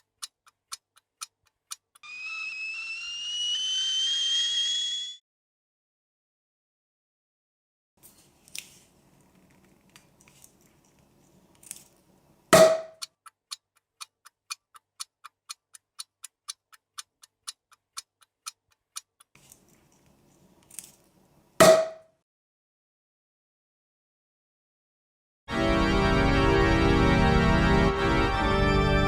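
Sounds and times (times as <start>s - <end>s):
mechanical ticking: 0.0s - 2.1s, 12.6s - 19.3s
loud sharp ringing knocks: 12.6s - 13.0s, 21.6s - 22.0s.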